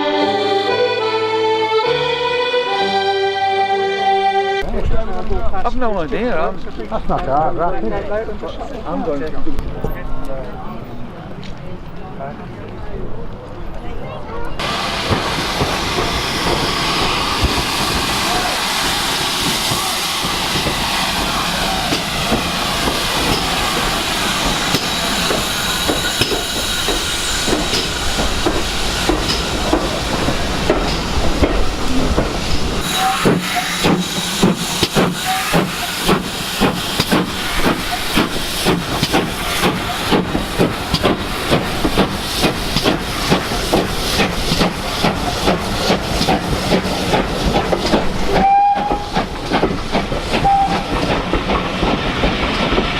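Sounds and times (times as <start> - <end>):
train working by: 0.0 - 52.9
steam hissing: 14.6 - 52.9.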